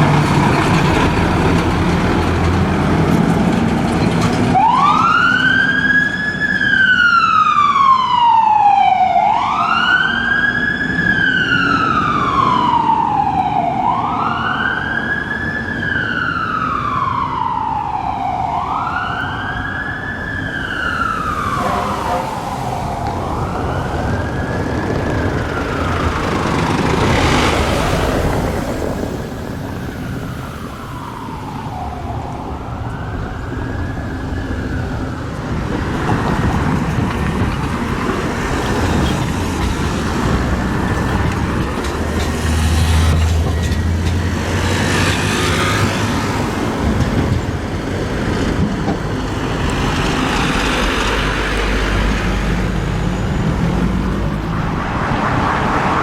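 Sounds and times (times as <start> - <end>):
heavy vehicle engine passing: 0.0 - 5.3, 20.2 - 56.0
street traffic: 0.0 - 56.0
siren wailing: 4.4 - 56.0.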